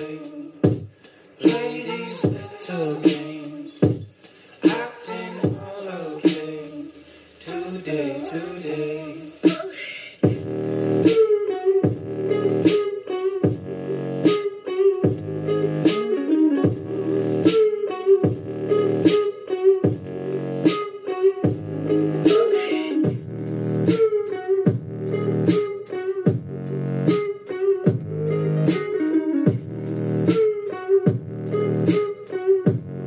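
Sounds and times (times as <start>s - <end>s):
song with steady beat on speaker: 0.0s - 33.0s
heavy bass hits: 10.2s - 11.1s, 13.5s - 14.0s, 16.7s - 17.5s, 23.1s - 23.9s, 24.7s - 25.6s.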